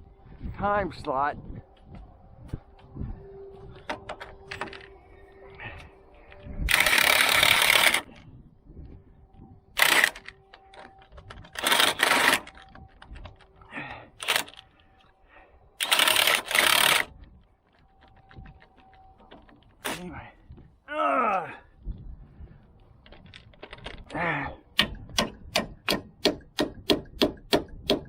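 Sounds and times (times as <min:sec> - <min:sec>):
pneumatic air tool bursts: 0:15.8 - 0:17.1.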